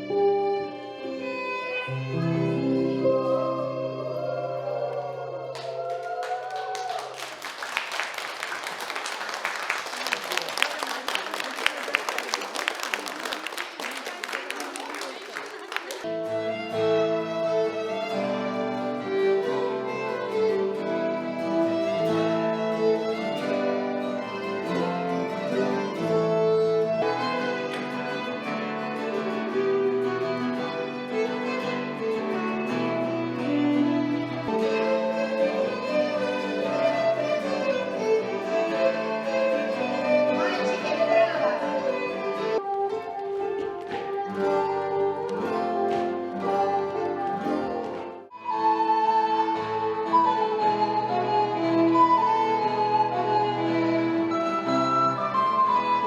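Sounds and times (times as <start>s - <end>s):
bowed fiddle melody: 0.0s - 5.2s, 16.1s - 56.0s
audience applauding: 5.5s - 16.3s, 22.7s - 48.3s
plucked strings: 16.1s - 52.1s.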